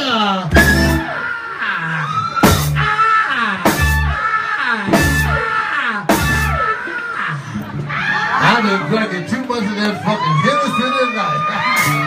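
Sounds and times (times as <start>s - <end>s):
drum and cymbal hits: 0.5s - 1.1s, 2.4s - 2.9s, 3.6s - 4.2s, 4.9s - 5.5s, 6.1s - 6.7s
bending electric guitar notes: 0.5s - 1.2s
live blues band playing: 0.5s - 1.3s, 2.4s - 6.9s.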